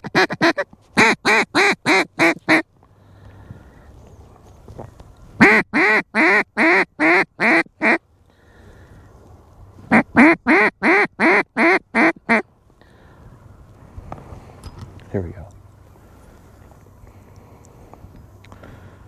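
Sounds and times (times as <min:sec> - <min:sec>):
duck quacking: 0:00.0 - 0:02.6, 0:05.4 - 0:08.0, 0:09.9 - 0:12.4.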